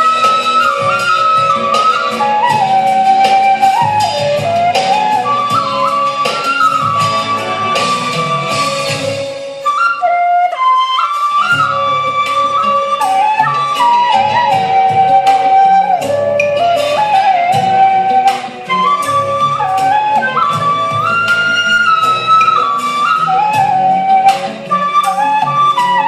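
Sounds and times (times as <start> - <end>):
backing accompaniment with bass: 0.0 - 26.0
bamboo flute melody: 0.0 - 26.0.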